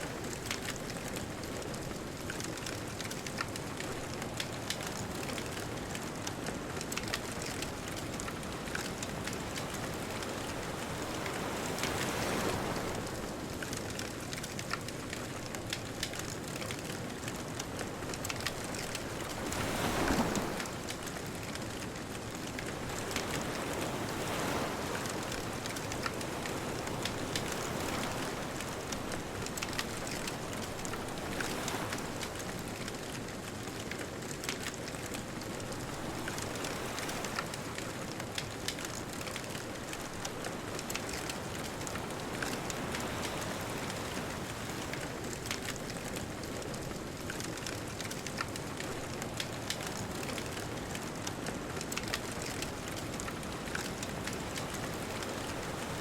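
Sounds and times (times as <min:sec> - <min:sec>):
bonfire crackling: 0:00.1 - 0:56.0
distant ocean surf: 0:17.9 - 0:21.6, 0:22.6 - 0:32.9, 0:34.7 - 0:56.0.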